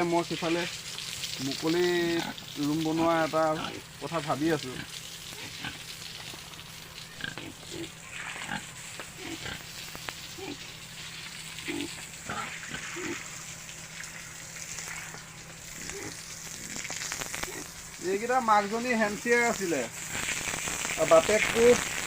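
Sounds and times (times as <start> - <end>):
pigs grunting: 1.5 - 17.8
light crackle of clicks: 9.8 - 10.2.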